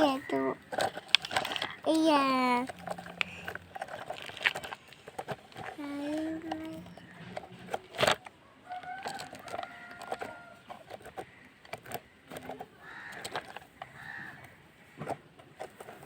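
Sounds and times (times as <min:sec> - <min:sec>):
sharp clicks and knocks: 0:00.0 - 0:16.0
rooster crowing: 0:08.4 - 0:10.6.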